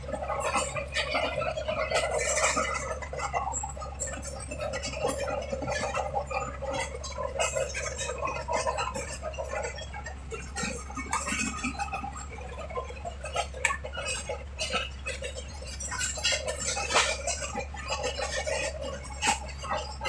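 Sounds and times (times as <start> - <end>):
diesel engine running: 0.0 - 20.0
track clatter: 0.0 - 20.0.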